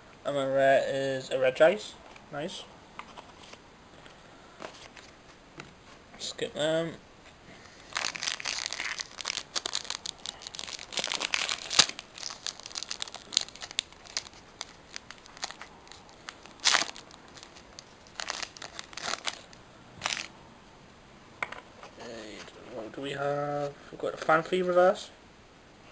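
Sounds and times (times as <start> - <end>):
foil wrapper tearing and crinkling: 7.7 - 20.3.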